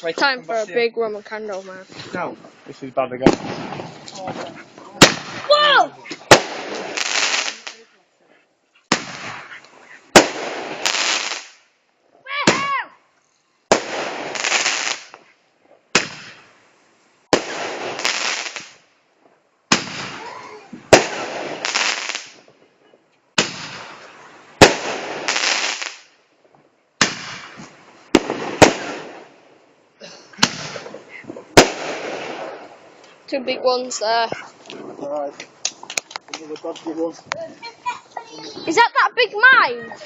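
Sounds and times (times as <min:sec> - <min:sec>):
crackling hiss: 0:00.0 - 0:38.8
roman candle bangs: 0:05.0 - 0:07.6, 0:15.9 - 0:16.5, 0:19.7 - 0:20.3, 0:23.4 - 0:26.1, 0:27.0 - 0:29.3, 0:30.4 - 0:32.7.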